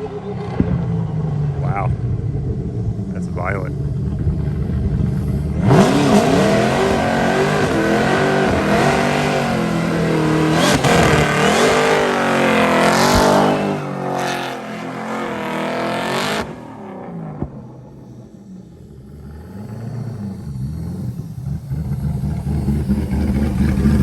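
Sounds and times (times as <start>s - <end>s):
car engine revving hard: 3.9s - 24.0s
hiss of spinning tyres: 17.8s - 24.0s.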